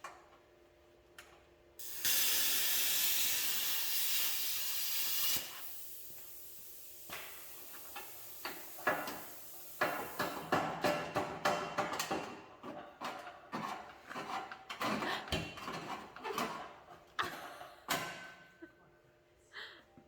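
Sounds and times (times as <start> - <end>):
compressed air hissing: 1.8 - 10.5.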